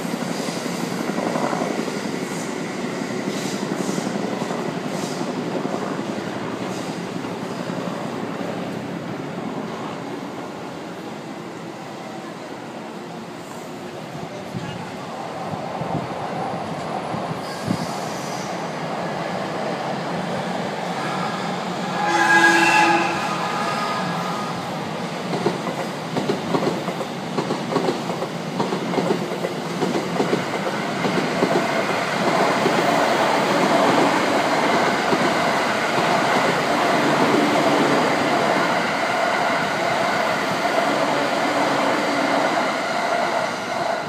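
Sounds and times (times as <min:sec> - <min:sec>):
train passing with humming tone: 0:00.0 - 0:44.0
train horn blast: 0:21.9 - 0:24.6.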